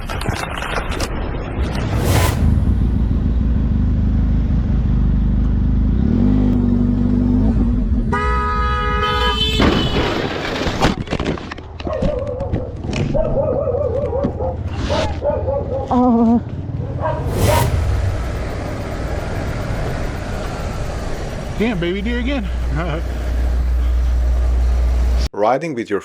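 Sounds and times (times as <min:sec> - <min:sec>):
vehicle engine low rumble: 0:01.4 - 0:08.1, 0:16.2 - 0:25.3
vehicle horn blast: 0:08.1 - 0:10.1.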